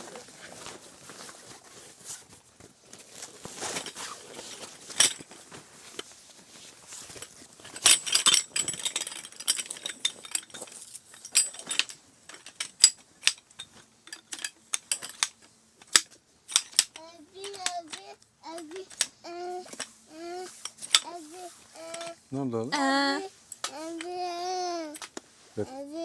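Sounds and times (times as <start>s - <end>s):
hard objects clinking and clattering: 6.8s - 22.2s.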